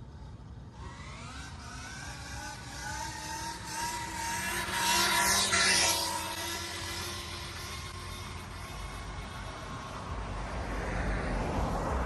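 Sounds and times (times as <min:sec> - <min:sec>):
electric motor whining: 0:00.8 - 0:10.1.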